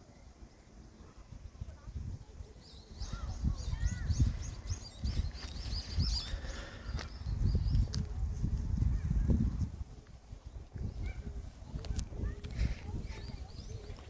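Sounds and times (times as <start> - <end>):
songbird chirping: 0.0 - 8.1.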